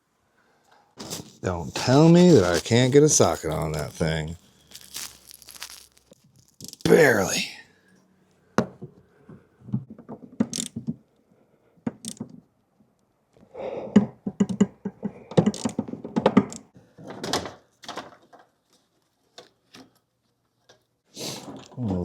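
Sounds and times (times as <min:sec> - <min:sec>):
ratchet wrench clicking: 0:10.5 - 0:10.7.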